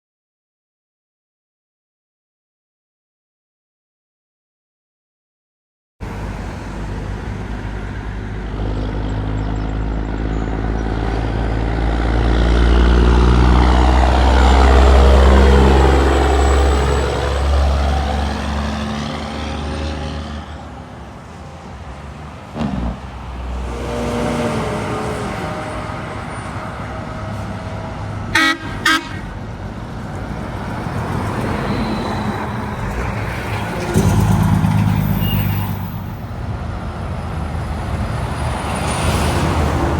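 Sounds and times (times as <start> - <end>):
truck engine drone: 6.0 - 39.9
horn toots: 28.3 - 29.4.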